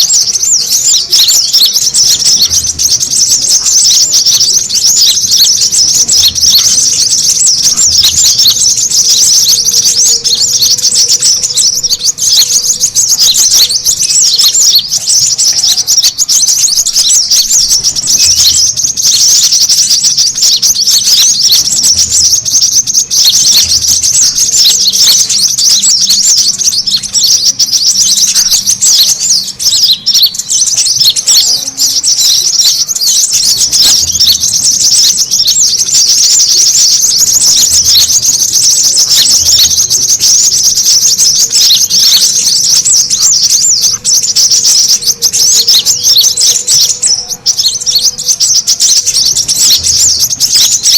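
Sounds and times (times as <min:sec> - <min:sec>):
birds chattering with high chirps: 0:00.0 - 0:50.9.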